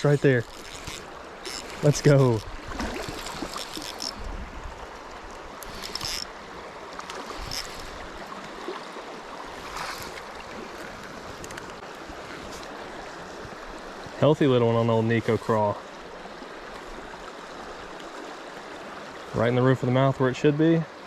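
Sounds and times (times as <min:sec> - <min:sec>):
water splashing: 0:00.0 - 0:13.5
creek water running: 0:00.0 - 0:21.0.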